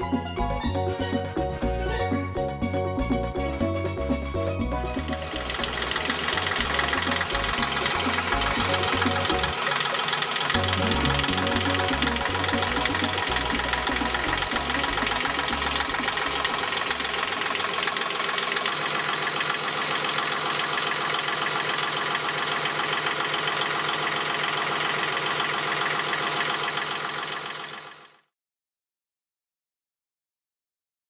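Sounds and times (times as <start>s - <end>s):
diesel engine idling: 4.6s - 28.2s.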